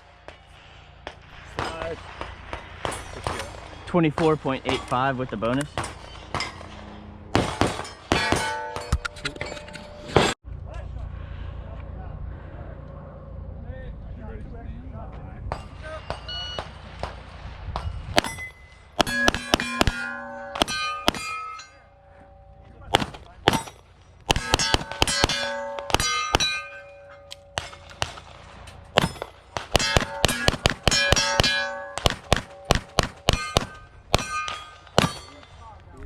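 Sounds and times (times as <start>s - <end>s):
steel plates ringing: 2.5s - 10.4s, 17.8s - 22.9s, 23.5s - 35.7s
rapid pistol fire: 19.0s - 21.3s, 24.3s - 26.5s, 29.0s - 34.3s.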